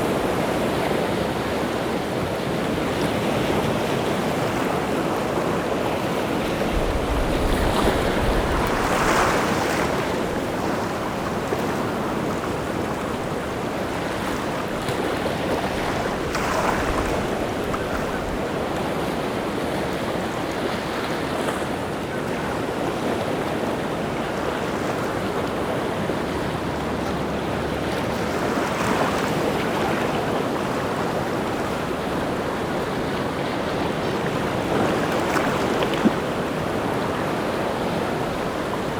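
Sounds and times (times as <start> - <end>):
sea waves breaking: 0.0 - 38.9
strong wind: 5.7 - 11.2.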